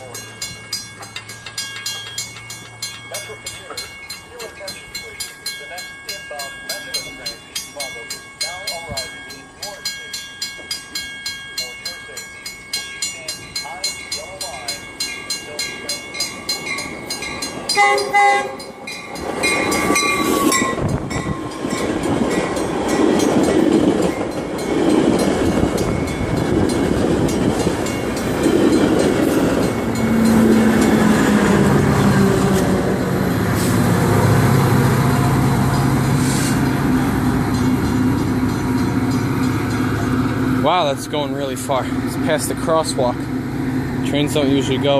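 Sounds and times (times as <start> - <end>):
crossing bells ringing: 0.0 - 44.9
train wheels rumbling on rail: 0.0 - 44.9
train horn: 17.7 - 18.7.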